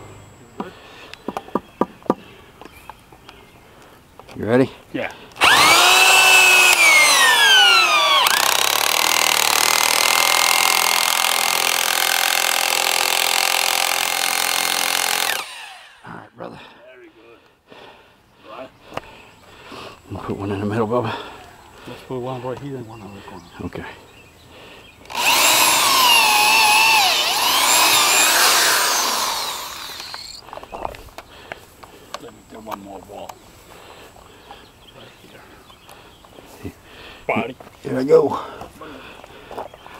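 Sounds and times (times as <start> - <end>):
power drill motor whine: 5.4 - 16.0, 25.0 - 30.4.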